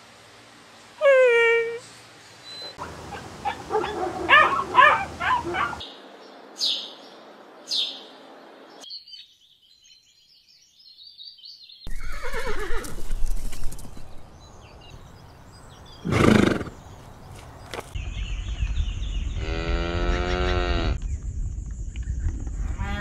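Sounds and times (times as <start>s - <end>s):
sparrow chirp: 5.2s - 12.1s
horse whinnying: 11.9s - 13.0s
horse snort: 16.0s - 16.8s.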